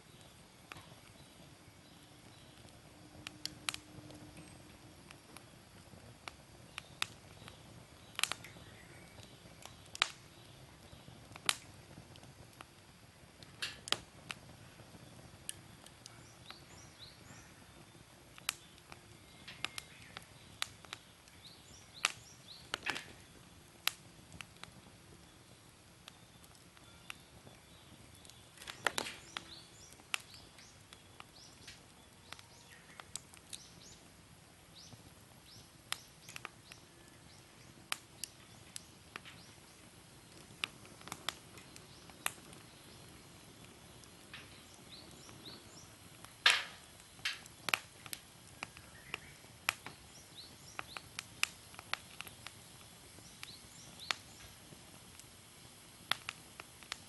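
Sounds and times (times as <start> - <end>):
faint steady hiss: 0.0 - 57.0
wood fire crackling and popping: 0.0 - 57.0.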